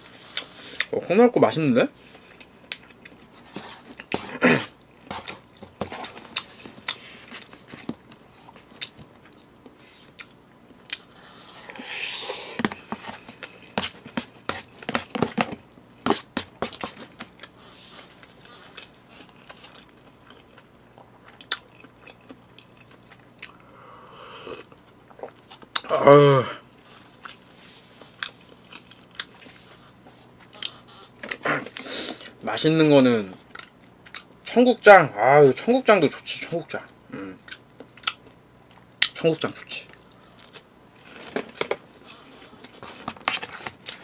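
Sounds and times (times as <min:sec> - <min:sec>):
person chewing and biting: 0:02.4 - 0:17.6, 0:18.2 - 0:23.7, 0:28.1 - 0:29.4.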